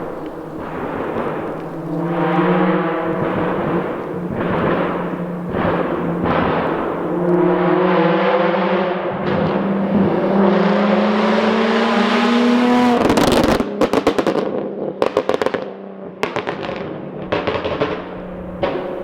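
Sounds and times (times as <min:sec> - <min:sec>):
exhaust crackles and pops: 0:00.0 - 0:08.0, 0:12.9 - 0:19.0
car engine revving: 0:00.0 - 0:19.0.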